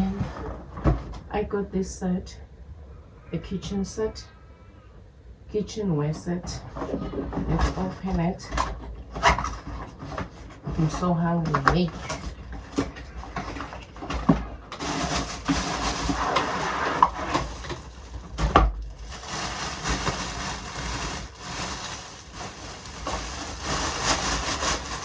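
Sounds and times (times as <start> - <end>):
packaging rustling and crinkling: 11.9 - 25.0.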